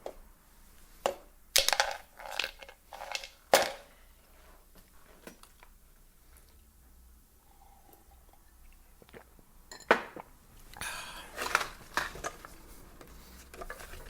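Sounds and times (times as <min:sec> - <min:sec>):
clattering handling noises: 0:11.4 - 0:14.0.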